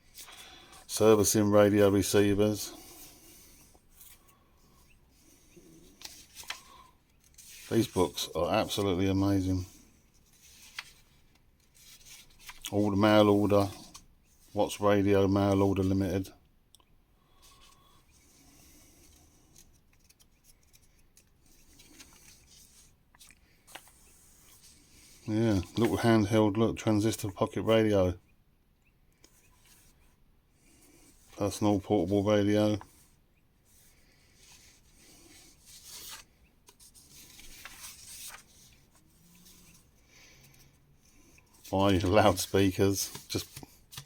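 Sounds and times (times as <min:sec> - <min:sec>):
magazine pages rustling and turning: 0:03.9 - 0:16.0, 0:19.0 - 0:26.3, 0:33.7 - 0:44.0.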